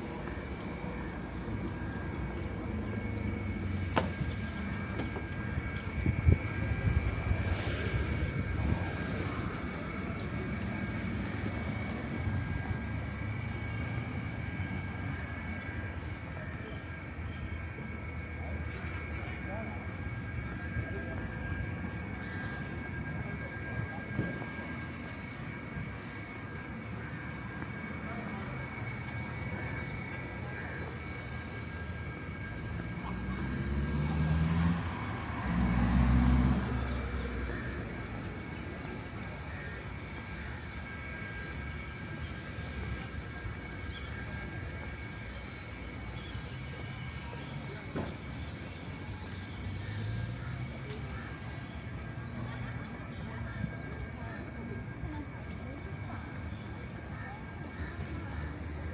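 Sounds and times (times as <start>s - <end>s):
motor vehicles passing: 32.4s - 39.3s.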